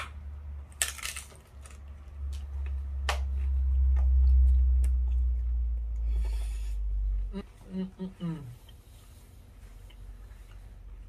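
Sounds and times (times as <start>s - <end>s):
deep low rumble: 2.1s - 7.8s.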